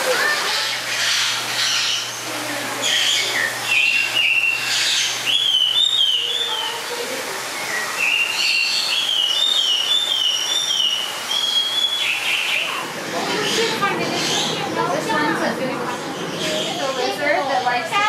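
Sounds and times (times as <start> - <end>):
bird singing whistled notes: 2.9 - 6.6, 7.6 - 12.7.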